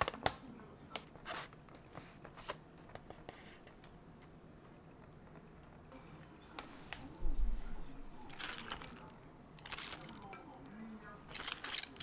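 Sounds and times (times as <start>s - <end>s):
plastic bag crinkle: 8.3s - 10.3s, 11.2s - 12.0s.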